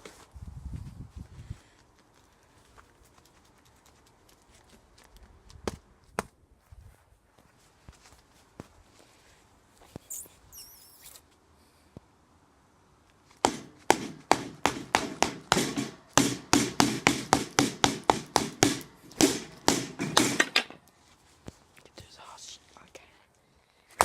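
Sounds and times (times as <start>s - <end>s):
pole beating a cardboard box: 13.4s - 20.8s.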